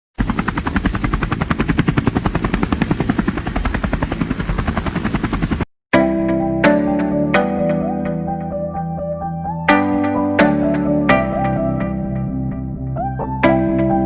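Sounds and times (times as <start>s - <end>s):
helicopter rotor blades chopping: 0.2s - 5.7s
plucked guitar music: 6.0s - 14.0s.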